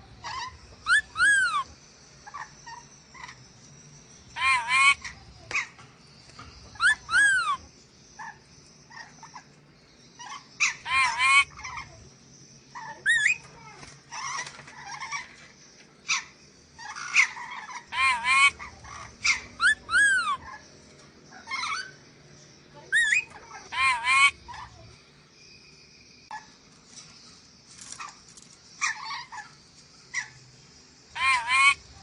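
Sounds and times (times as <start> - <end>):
parrot screeching: 0.2 - 1.7, 4.4 - 5.1, 6.8 - 7.6, 10.2 - 11.9, 12.8 - 13.5, 16.1 - 20.6, 22.9 - 24.7, 31.2 - 31.8.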